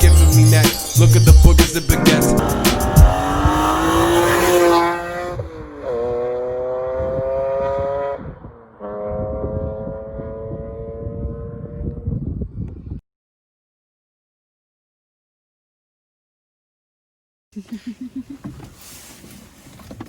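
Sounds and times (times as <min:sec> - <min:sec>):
car engine accelerating: 0:00.1 - 0:11.9.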